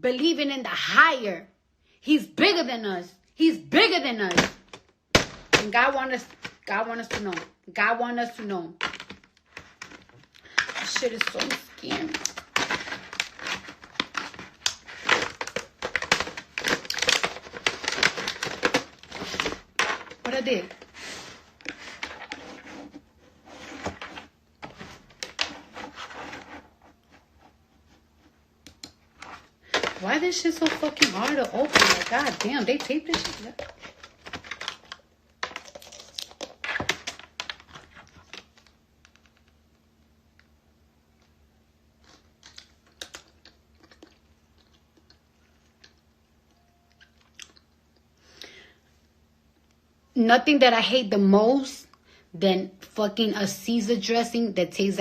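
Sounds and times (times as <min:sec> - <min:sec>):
package rustling: 0:08.8 - 0:27.6, 0:28.7 - 0:39.8, 0:42.0 - 0:46.0.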